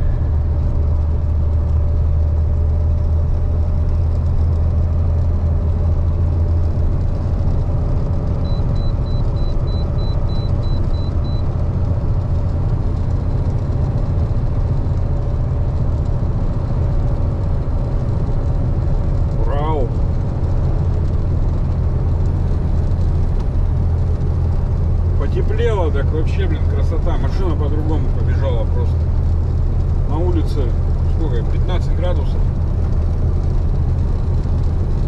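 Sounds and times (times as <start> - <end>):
truck engine and road drone: 0.0 - 35.0
faint high-pitched beeps: 8.4 - 11.5.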